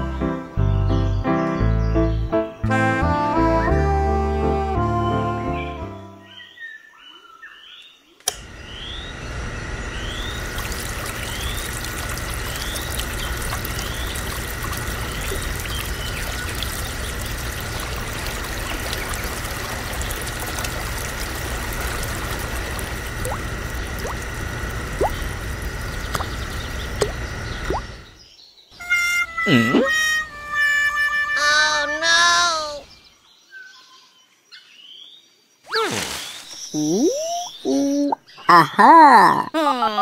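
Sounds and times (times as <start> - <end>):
pump click: 8.2 - 8.5
water trickling from pump spout: 10.2 - 28.0.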